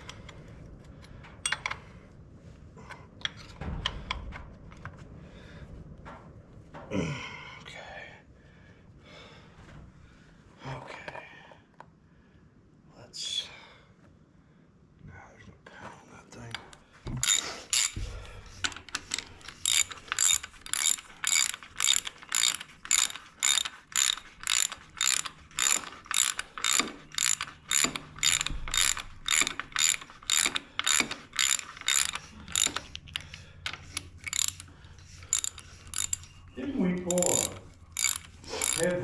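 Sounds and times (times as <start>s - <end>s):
ratchet wrench ratcheting: 17.1s - 39.0s.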